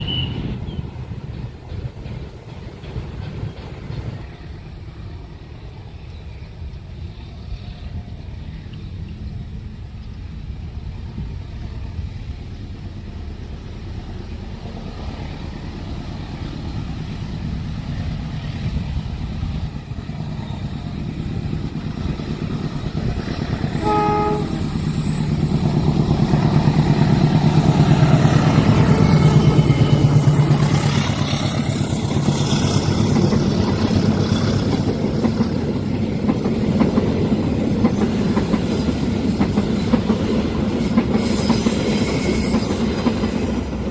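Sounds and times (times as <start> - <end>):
locomotive engine rumble: 0.0 - 43.9
train horn blast: 23.7 - 25.2.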